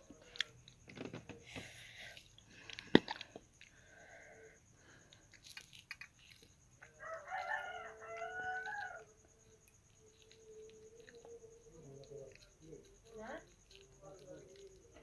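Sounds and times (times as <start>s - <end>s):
soft eating noises: 0.0s - 15.0s
rooster crowing: 6.8s - 9.5s.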